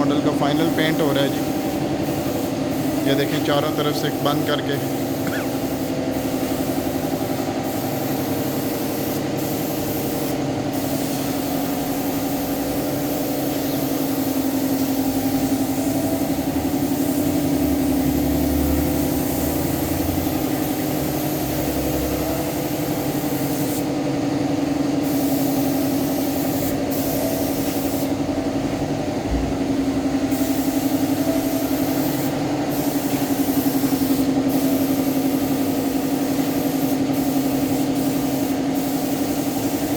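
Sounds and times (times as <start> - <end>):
spray gun hissing: 0.0 - 28.2, 30.2 - 39.9
steady machine hum: 28.1 - 36.3.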